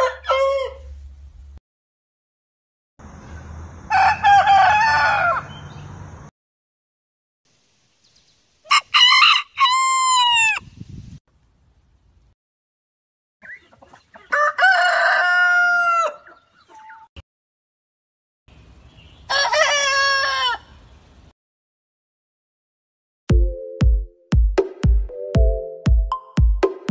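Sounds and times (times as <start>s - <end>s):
rooster crowing: 0.0s - 1.0s, 3.9s - 5.6s, 8.7s - 10.6s, 14.3s - 16.4s, 19.3s - 20.8s.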